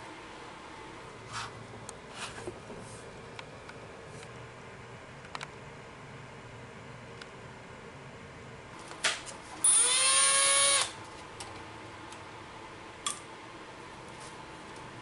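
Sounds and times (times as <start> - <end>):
click: 5.2 - 5.5
power tool whine: 9.6 - 11.0.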